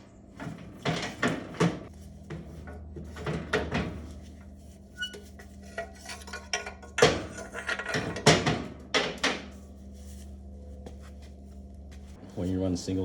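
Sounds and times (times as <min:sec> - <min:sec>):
steady low hum: 0:00.0 - 0:13.0
metal clanking and knocking: 0:00.4 - 0:04.2, 0:05.7 - 0:09.6.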